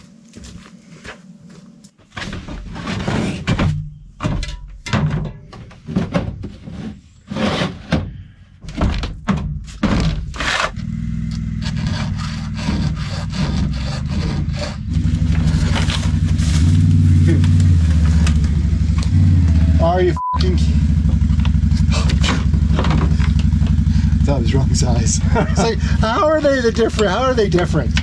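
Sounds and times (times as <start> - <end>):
knocks and clunks: 2.0 - 10.9, 20.4 - 24.1, 24.8 - 28.0
quad engine starting and running: 10.5 - 28.0.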